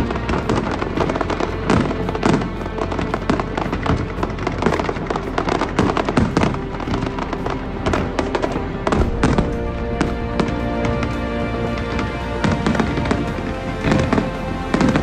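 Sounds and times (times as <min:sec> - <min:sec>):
fireworks bursting and crackling: 0:00.0 - 0:15.0
music playing: 0:00.0 - 0:15.0.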